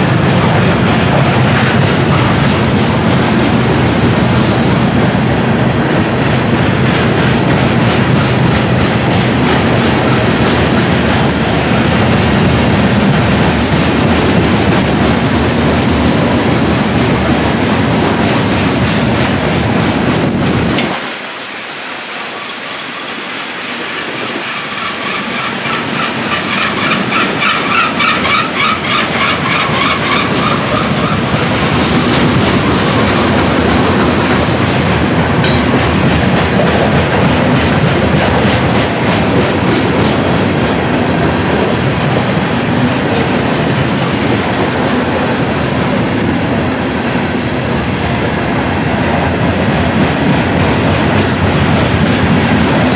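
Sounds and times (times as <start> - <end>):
low train rumble: 0.0 - 52.9
train wheels clickety-clack: 0.0 - 52.9
high wavering wheel squeal: 22.3 - 31.5.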